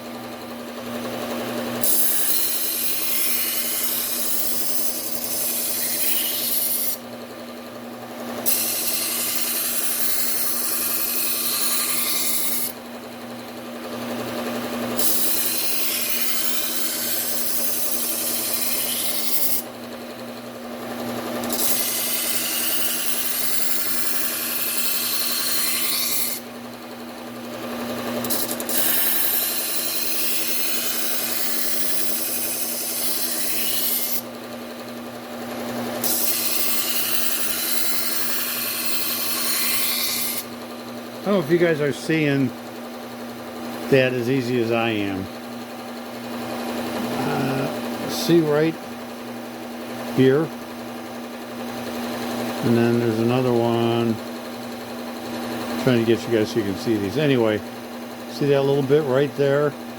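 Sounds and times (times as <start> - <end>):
belt sander grinding knife edge: 0.0 - 59.9
sander motor hum: 29.2 - 59.9.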